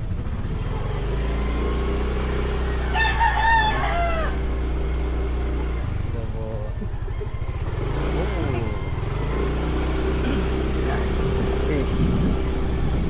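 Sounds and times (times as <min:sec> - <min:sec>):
motorcycle engine running: 0:00.0 - 0:13.0
rooster crowing: 0:02.6 - 0:04.7.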